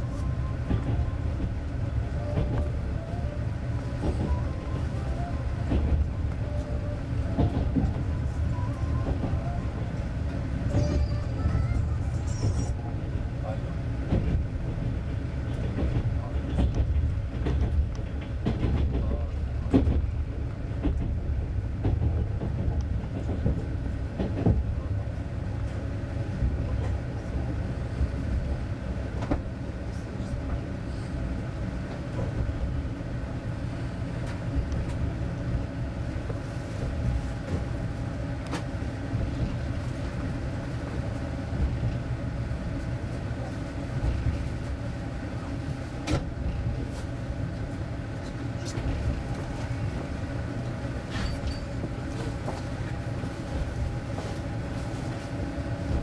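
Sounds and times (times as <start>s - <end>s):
low rumble of wheels on rail: 0.0s - 56.0s
clicks and knocks from track: 7.3s - 8.1s, 15.5s - 20.1s, 20.7s - 21.2s, 21.8s - 24.6s, 29.2s - 29.5s, 46.0s - 46.3s.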